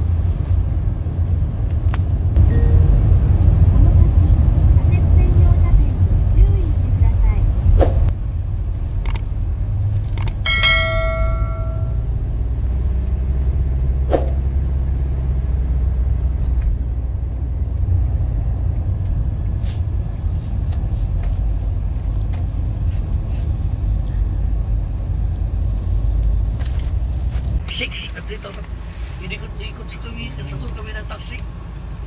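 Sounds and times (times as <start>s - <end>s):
train rumble: 0.0s - 14.6s, 15.6s - 32.0s
short ringing chime: 10.5s - 12.1s.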